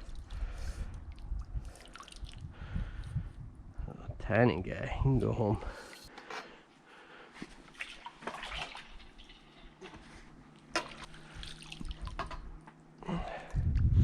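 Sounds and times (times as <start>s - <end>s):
water dripping and splashing: 0.0s - 3.1s, 7.7s - 13.0s.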